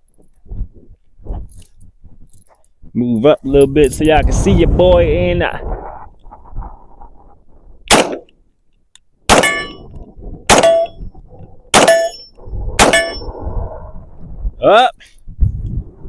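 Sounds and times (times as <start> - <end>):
pistol shots: 7.9 - 8.3, 9.3 - 9.8, 10.5 - 10.9, 11.7 - 12.2
steel target clanging: 9.3 - 11.0, 11.7 - 13.3.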